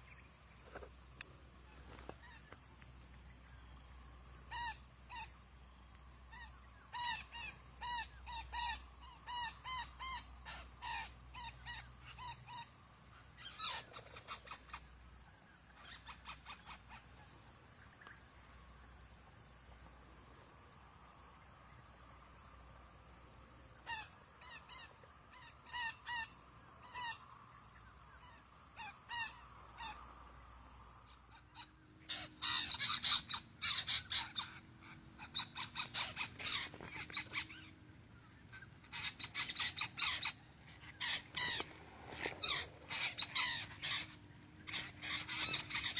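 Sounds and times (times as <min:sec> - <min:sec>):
parakeets giving harsh calls: 0:31.6 - 0:34.6, 0:35.2 - 0:37.7, 0:38.5 - 0:45.9.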